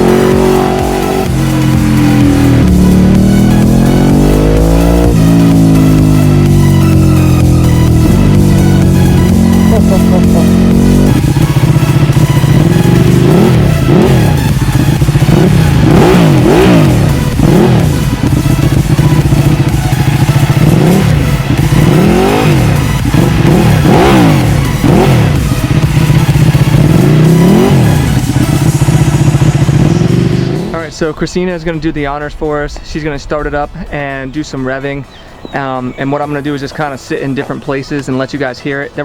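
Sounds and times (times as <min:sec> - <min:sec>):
motorcycle engine idling: 0:00.0 - 0:32.8
motorcycle engine revving: 0:00.0 - 0:32.8.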